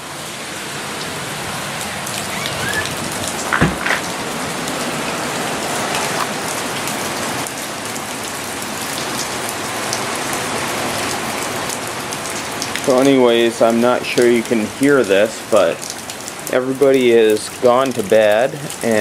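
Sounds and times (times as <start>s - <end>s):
heavy rain falling: 0.0s - 19.0s
short thump: 3.5s - 4.1s.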